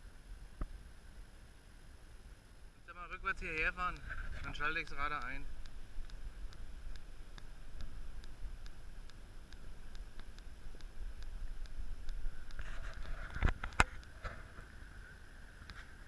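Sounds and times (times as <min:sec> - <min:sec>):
faint regular ticking: 0:03.0 - 0:14.8.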